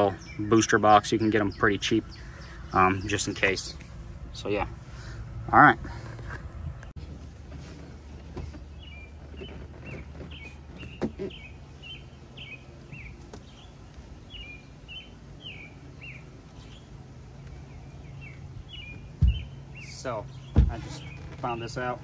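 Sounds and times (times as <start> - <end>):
small bird chirping: 8.5 - 22.0
heavy thump: 19.2 - 19.6, 20.5 - 21.3.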